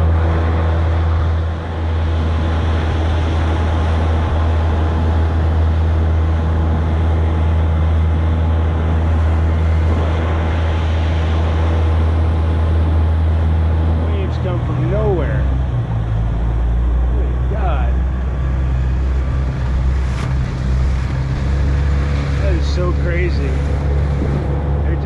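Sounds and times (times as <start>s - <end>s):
outboard motor droning: 0.0s - 25.0s.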